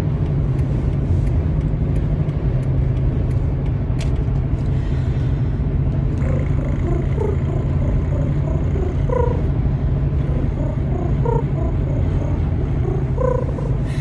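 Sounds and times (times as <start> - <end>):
car rumbling on the road: 0.0 - 14.0.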